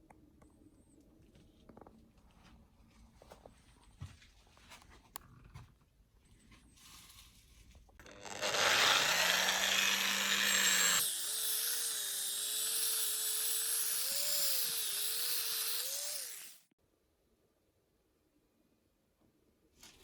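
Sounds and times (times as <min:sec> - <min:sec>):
electric power tool running: 0:08.0 - 0:16.7.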